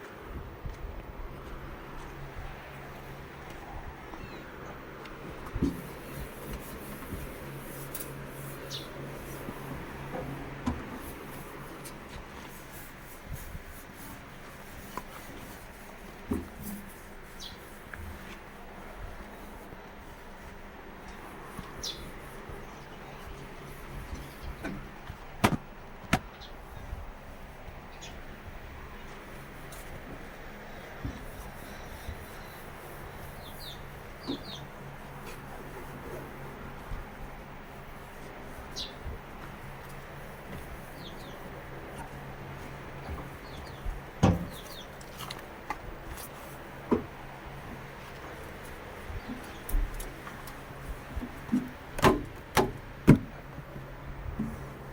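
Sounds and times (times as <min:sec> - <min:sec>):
steady low hum: 0:00.0 - 0:54.9
tractor diesel engine running: 0:00.0 - 0:54.9
bird chirps: 0:21.8 - 0:22.1, 0:31.7 - 0:34.6
sharp knocks: 0:44.2 - 0:44.6.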